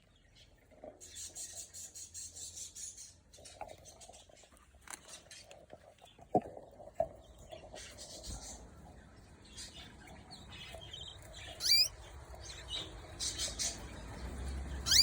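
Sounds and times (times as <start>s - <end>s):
birds rustling and scratching in cage: 0.3s - 8.8s.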